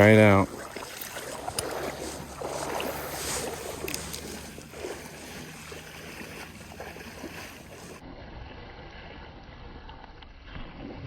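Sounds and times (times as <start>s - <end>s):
stream water rushing: 0.0s - 8.0s.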